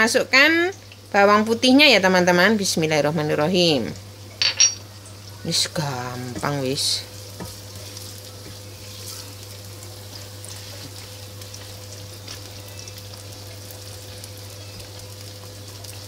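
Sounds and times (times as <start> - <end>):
vegetables sizzling in hot oil: 0.0 - 16.0
spatula tapping: 6.2 - 6.6, 7.3 - 7.8.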